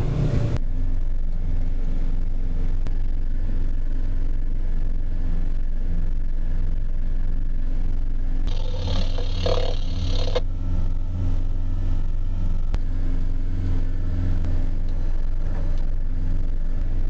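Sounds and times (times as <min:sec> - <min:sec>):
boat engine droning: 0:00.0 - 0:00.6, 0:08.4 - 0:17.0.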